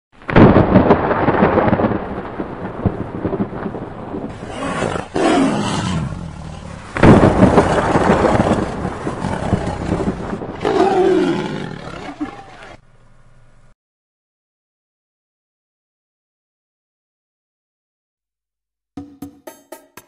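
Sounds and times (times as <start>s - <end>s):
wind on microphone: 2.9s - 10.8s.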